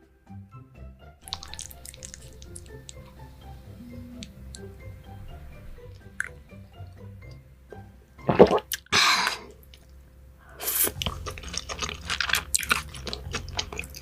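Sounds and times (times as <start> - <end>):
chewing and mouth smacking: 1.2 - 3.3, 10.6 - 14.0
wet eating sounds: 1.2 - 4.7, 8.3 - 9.8, 10.5 - 14.0.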